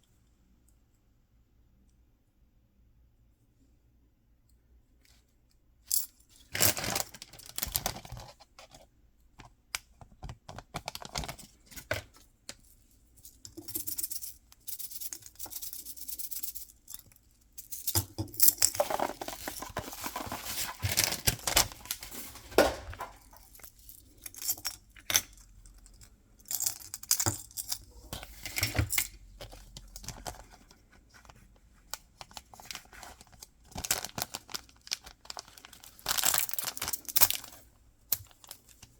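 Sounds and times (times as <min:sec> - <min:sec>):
packaging tearing and crinkling: 0:18.7 - 0:23.3, 0:32.6 - 0:37.5.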